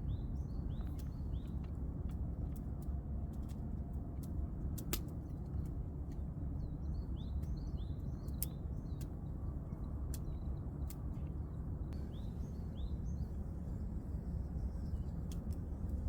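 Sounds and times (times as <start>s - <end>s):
campfire crackling and popping: 4.2s - 6.2s
small birds chirping: 11.9s - 15.9s.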